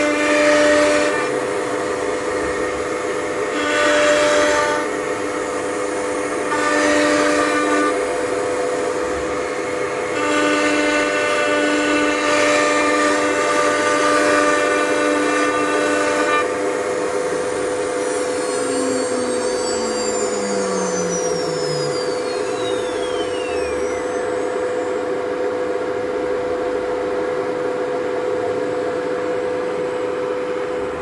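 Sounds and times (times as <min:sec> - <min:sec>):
router spindle whine: 0:16.0 - 0:25.4.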